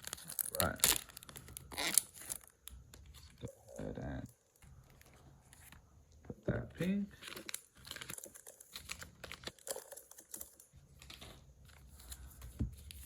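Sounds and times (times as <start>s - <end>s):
cards and plastic packaging crinkling: 0.0s - 3.5s, 4.1s - 5.9s, 6.8s - 13.0s.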